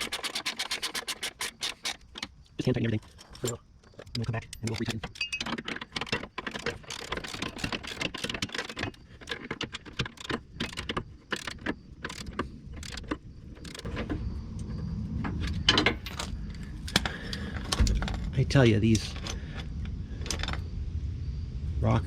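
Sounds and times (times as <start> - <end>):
steel bolts clinking and rattling: 0.0 - 13.9.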